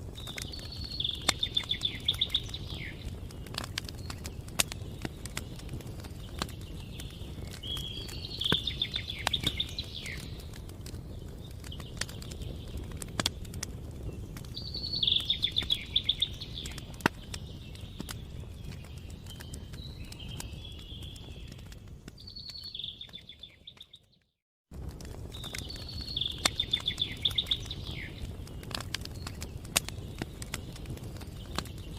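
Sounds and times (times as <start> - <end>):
campfire crackling: 0.0 - 23.9, 24.7 - 31.9
songbird trilling: 0.4 - 3.1, 6.9 - 10.3, 14.6 - 16.9, 25.6 - 28.2.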